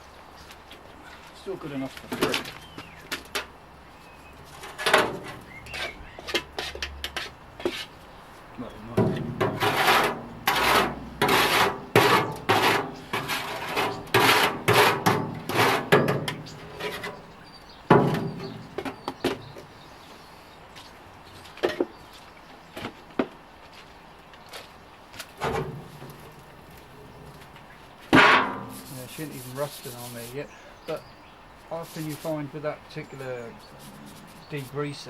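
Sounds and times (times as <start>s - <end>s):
rough scraping strokes: 4.2s - 19.0s, 25.4s - 30.5s, 31.7s - 35.0s.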